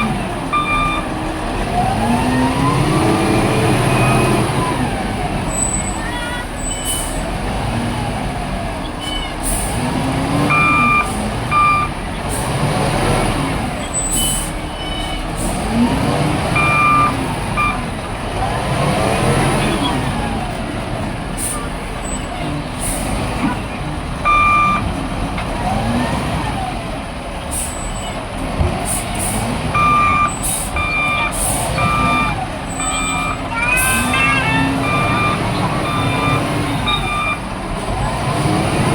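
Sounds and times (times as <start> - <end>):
reversing alarm beeps: 0.0 - 1.1, 10.5 - 12.0, 16.6 - 17.8, 24.3 - 24.8, 29.8 - 37.5
excavator diesel engine working: 0.0 - 38.9.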